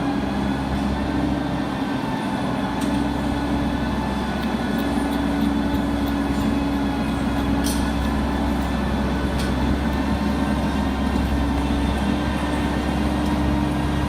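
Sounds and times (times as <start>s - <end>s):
heavy farm machine engine: 0.0s - 14.0s.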